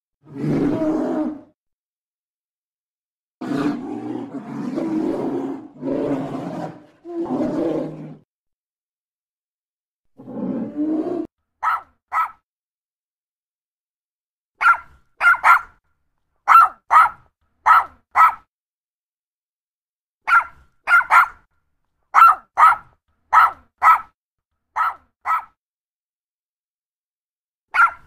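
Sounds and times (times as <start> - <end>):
dog barking: 11.6 - 12.4, 14.6 - 15.8, 16.5 - 18.5, 20.2 - 21.5, 22.1 - 25.6, 27.7 - 28.0.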